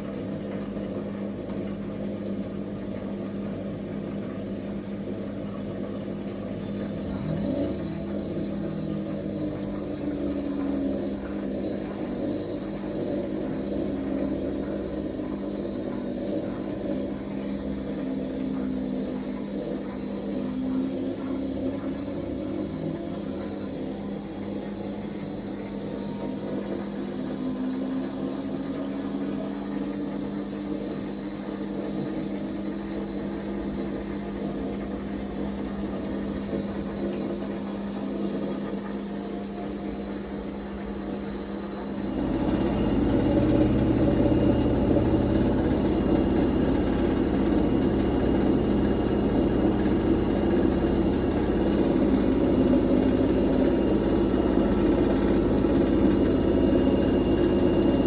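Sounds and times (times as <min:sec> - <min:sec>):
washing machine motor whine: 0:00.0 - 0:58.0
washing machine drum rumble: 0:25.7 - 0:58.0.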